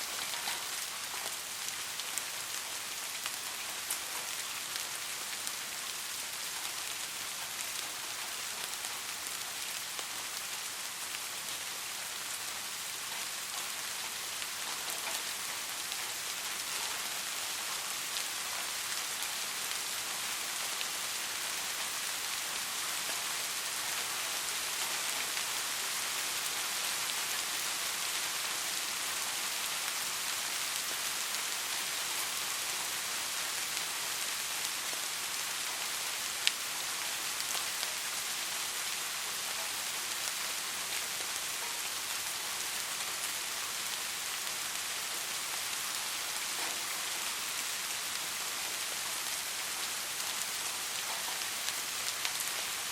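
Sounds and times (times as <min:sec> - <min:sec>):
soft steady rain: 0:00.0 - 0:52.9.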